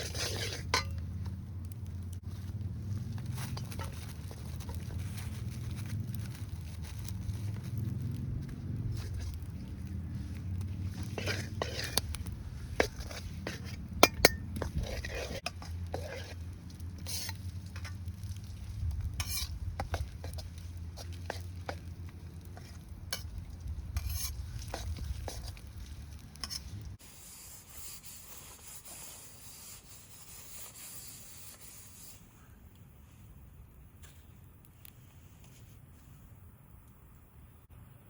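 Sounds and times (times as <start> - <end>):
metal spatula scraping a pan: 0.0 - 1.0, 10.8 - 18.0, 19.1 - 21.9, 22.5 - 25.6, 26.2 - 28.2.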